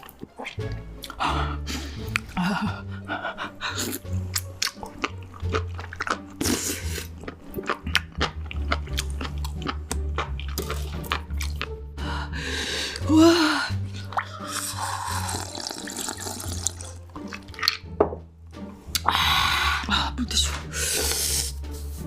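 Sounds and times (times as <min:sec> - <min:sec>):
background music with bass: 0:00.5 - 0:22.0
crunchy chewing: 0:03.7 - 0:11.8, 0:13.9 - 0:17.8.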